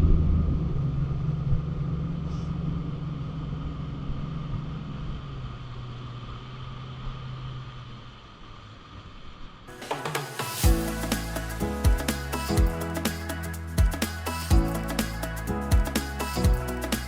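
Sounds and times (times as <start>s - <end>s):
low rumble with hum: 0.0s - 8.4s
music: 9.7s - 17.0s.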